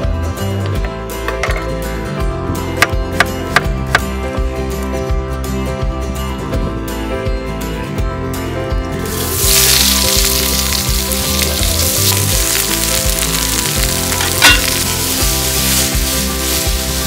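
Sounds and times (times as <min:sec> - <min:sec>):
vegetables sizzling in hot oil: 0:09.1 - 0:17.0.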